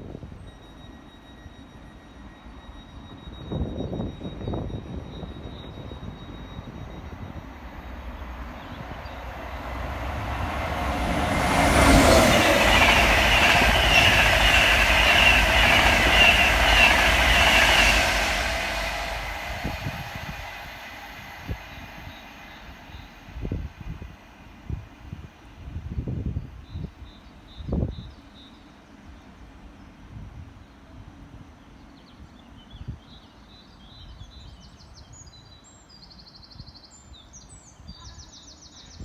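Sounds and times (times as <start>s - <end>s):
high whine of train wheels: 0.0s - 26.4s
train wheels rumbling on rails: 3.4s - 24.2s.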